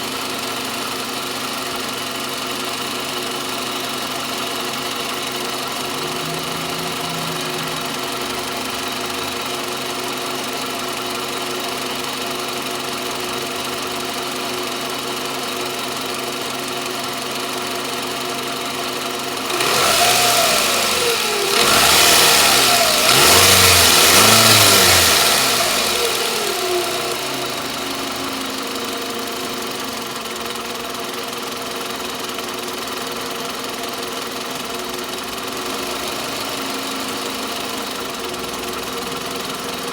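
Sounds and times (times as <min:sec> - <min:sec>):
car engine idling: 0:00.0 - 0:39.9
car engine revving: 0:04.4 - 0:11.1, 0:19.5 - 0:31.0, 0:35.0 - 0:39.9.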